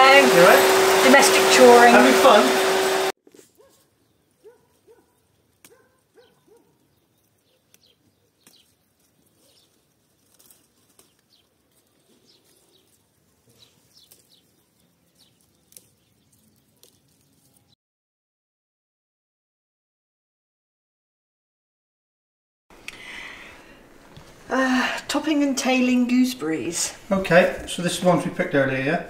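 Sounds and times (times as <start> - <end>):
thin high bird chirps: 3.6 - 17.8.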